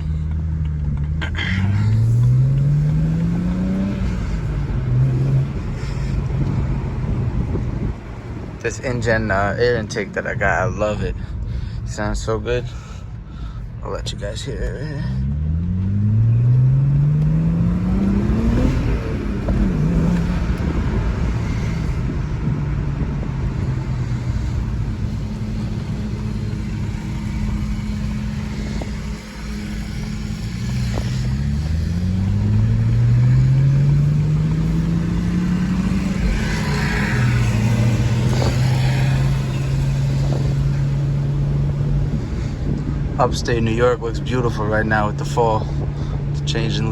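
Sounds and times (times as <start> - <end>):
car engine accelerating: 0.0 - 46.9.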